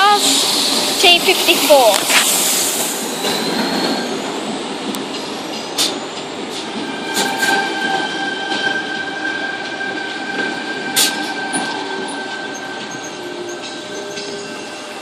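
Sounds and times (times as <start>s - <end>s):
train wheels rumbling on track: 0.0s - 15.0s
high wheel squeal: 3.0s - 4.2s, 6.8s - 15.0s.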